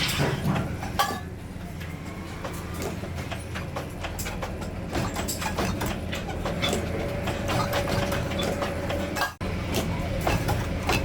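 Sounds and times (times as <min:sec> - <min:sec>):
machinery humming: 0:00.0 - 0:11.0
metallic clicks and knocks: 0:02.5 - 0:11.0.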